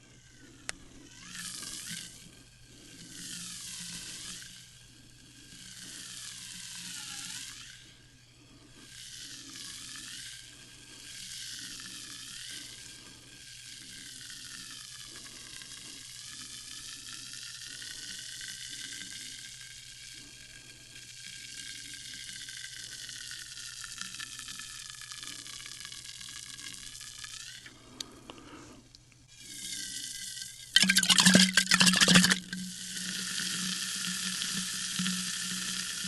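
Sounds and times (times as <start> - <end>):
sparkling water fizzing: 30.8 - 32.6.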